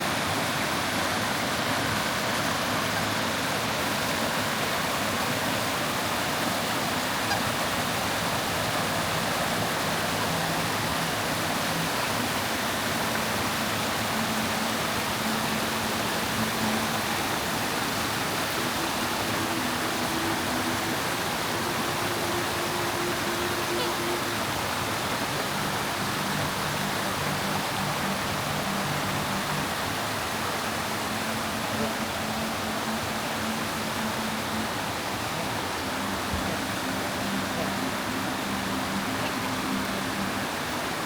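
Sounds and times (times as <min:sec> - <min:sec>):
flowing water rushing: 0:00.0 - 0:41.0
faint low drawn-out tones: 0:01.2 - 0:41.0.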